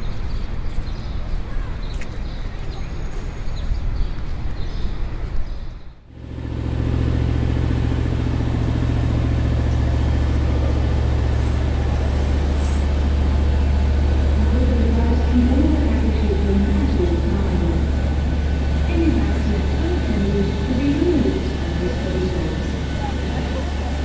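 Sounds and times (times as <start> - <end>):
low engine drone: 6.1 - 24.0.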